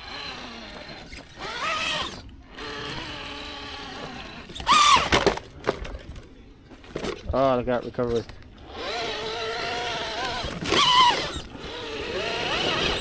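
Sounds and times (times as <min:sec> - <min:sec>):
electric motor and gears whining: 0:00.0 - 0:05.4, 0:08.1 - 0:13.0.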